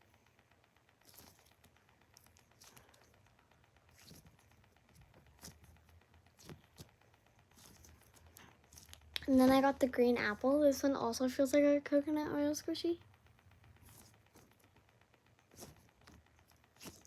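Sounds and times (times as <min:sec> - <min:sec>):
squishy toy crinkling and tapping: 0:00.9 - 0:09.6, 0:13.0 - 0:17.0.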